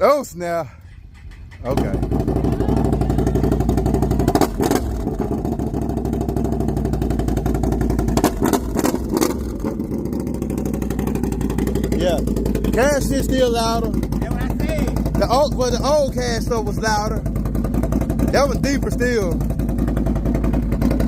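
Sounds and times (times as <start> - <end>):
atv engine running loud and deep: 0.7 - 21.0
sharp exhaust cracks: 0.8 - 21.0.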